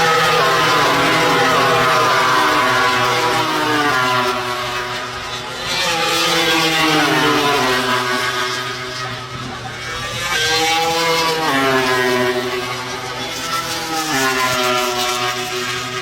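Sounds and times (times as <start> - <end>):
racing motorcycles at high revs: 0.0 - 4.4.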